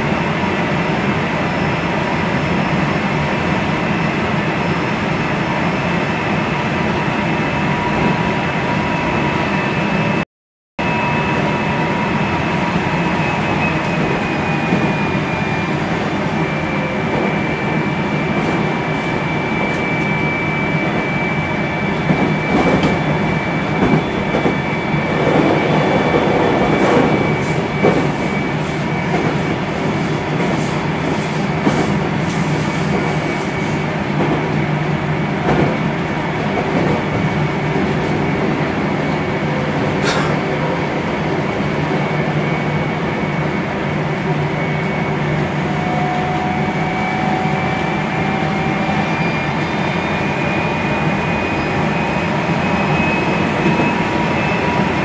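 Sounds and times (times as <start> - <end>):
train wheels rumbling on track: 11.1 - 55.0.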